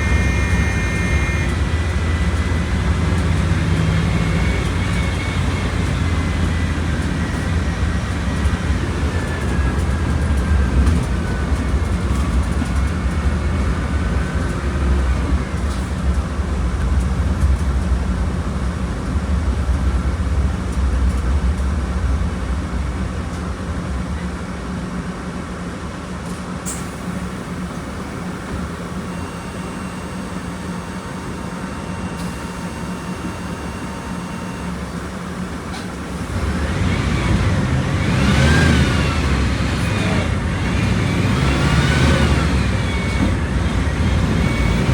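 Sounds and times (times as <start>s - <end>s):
falling whine: 0.0s - 10.4s
bus diesel engine rumbling: 0.0s - 44.9s.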